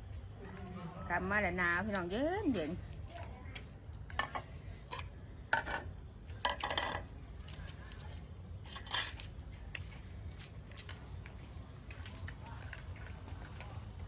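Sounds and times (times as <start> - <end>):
cutlery and dishes clinking: 4.2 - 9.3.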